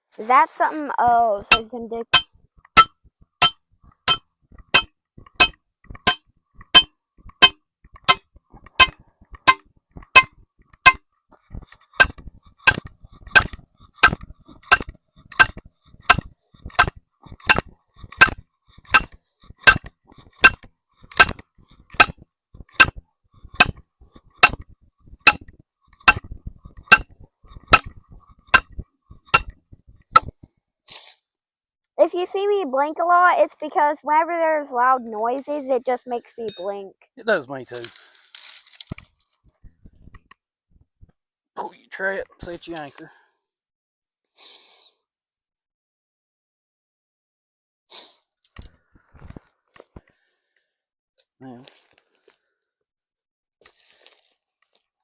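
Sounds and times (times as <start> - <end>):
hammer striking metal stake: 1.5 - 11.0, 11.7 - 29.6, 30.2 - 30.4.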